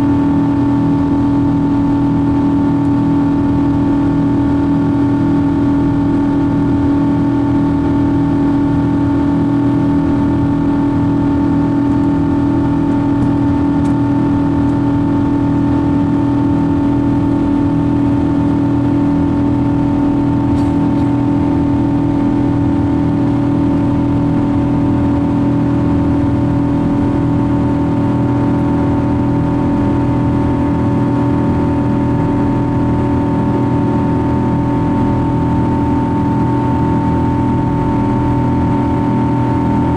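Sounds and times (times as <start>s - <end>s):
jet cabin drone: 0.0s - 39.9s.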